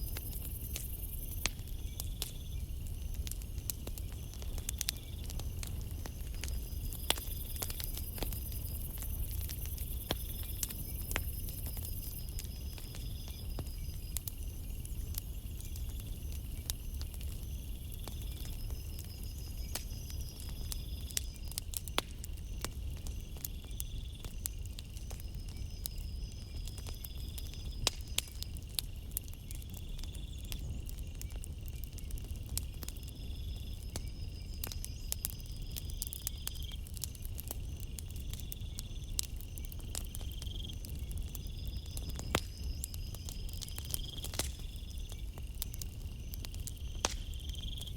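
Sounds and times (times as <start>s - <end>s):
campfire crackling and popping: 0.0s - 47.9s
crickets chirping: 0.0s - 47.9s.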